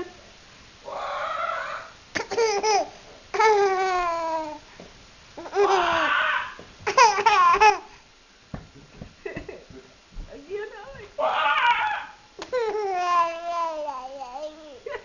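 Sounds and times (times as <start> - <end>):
baby laughing: 2.1 - 4.6, 5.4 - 6.2, 6.8 - 7.9, 12.4 - 15.0.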